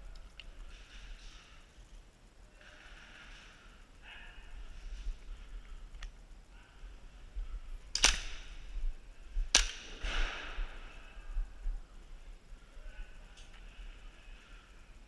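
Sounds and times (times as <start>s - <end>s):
airsoft gun shots: 8.0s - 8.6s.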